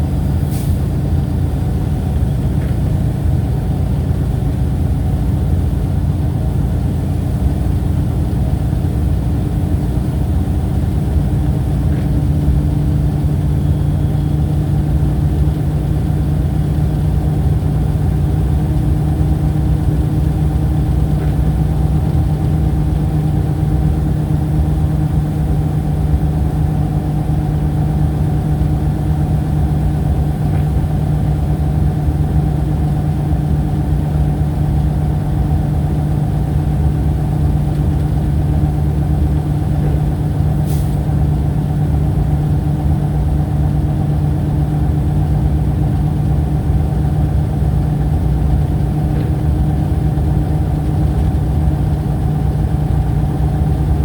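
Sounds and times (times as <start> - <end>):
low rumble: 31.6 - 54.0.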